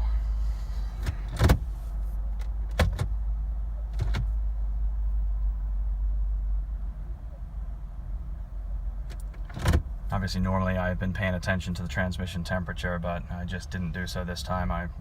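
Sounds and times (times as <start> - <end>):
steady low rumble: 0.0 - 15.0
ignition key and gear selector clicks: 1.0 - 3.1, 3.9 - 4.4, 9.1 - 9.9.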